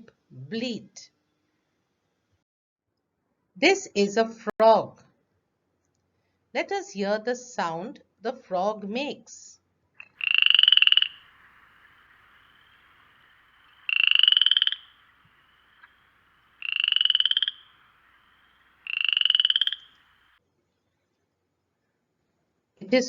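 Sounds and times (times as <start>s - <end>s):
frog croaking: 10.0s - 20.4s.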